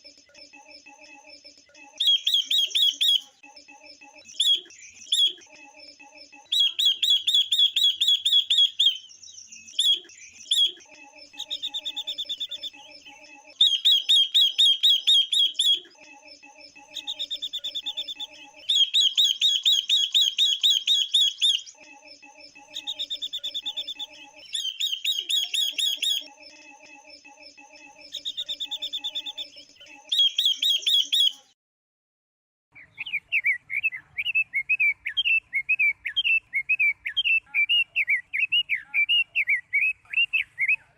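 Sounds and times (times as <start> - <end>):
high buzzy bird trill: 0.0 - 31.6
pulsed bird chattering: 0.3 - 31.5.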